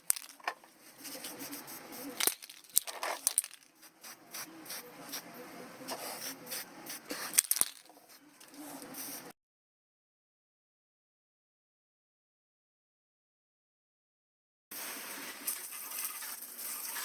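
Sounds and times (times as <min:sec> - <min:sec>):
rustling and scraping: 0:00.0 - 0:03.8, 0:07.0 - 0:09.3.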